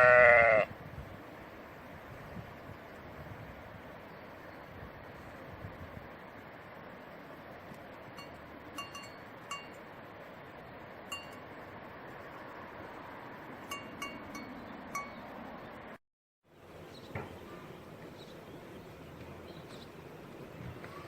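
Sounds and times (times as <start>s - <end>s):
bell pings: 8.2s - 9.8s, 11.1s - 11.5s, 13.7s - 15.2s.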